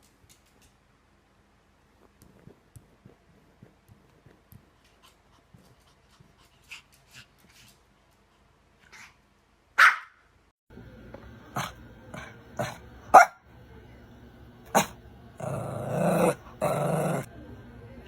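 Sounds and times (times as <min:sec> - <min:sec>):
faint small noises: 0:00.0 - 0:09.8
dog barking: 0:09.8 - 0:10.2, 0:11.6 - 0:13.4, 0:14.7 - 0:17.3.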